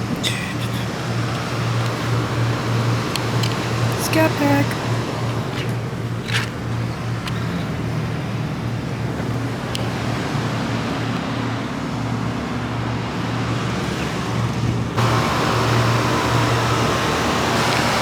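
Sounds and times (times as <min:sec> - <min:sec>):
faint pulsing hum: 0:00.0 - 0:13.4
engine and traffic rumble: 0:00.0 - 0:18.0.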